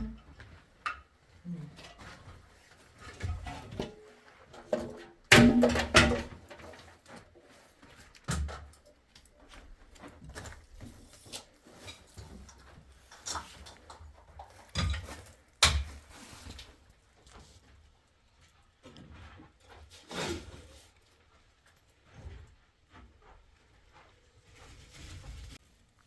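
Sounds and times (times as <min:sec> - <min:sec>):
knocks and clatters: 0:04.6 - 0:06.9.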